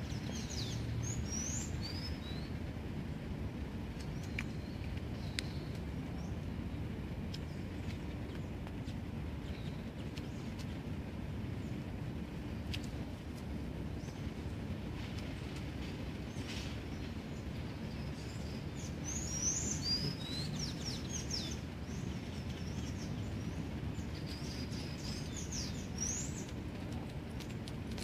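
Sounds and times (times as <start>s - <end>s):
small birds chirping: 0.0s - 28.0s
steady low rumble: 0.0s - 28.0s.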